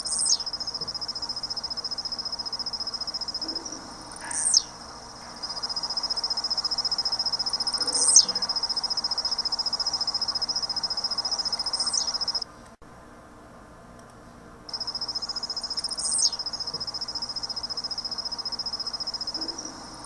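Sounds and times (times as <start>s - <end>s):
bird whistles sweeping downward: 0.0s - 0.7s, 4.3s - 4.8s, 5.4s - 12.4s, 14.7s - 19.7s
bird trilling: 0.0s - 12.4s, 14.7s - 19.9s.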